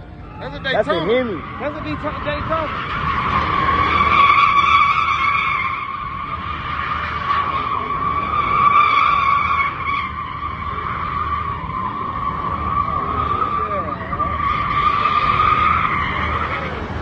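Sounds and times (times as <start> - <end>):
car engine rumbling: 0.0 - 17.0
tyres squealing: 0.2 - 17.0.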